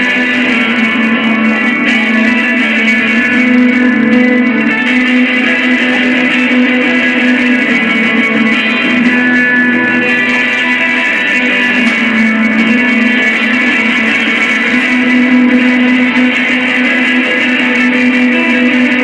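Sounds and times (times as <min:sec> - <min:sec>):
low drone: 0:00.0 - 0:18.6
electric guitar jamming: 0:00.0 - 0:19.0.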